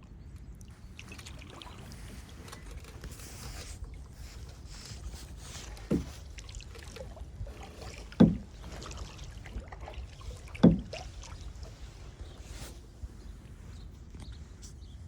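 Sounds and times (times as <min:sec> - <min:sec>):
paddle stroke thumps: 0:05.4 - 0:06.5, 0:07.6 - 0:09.7, 0:10.4 - 0:11.8.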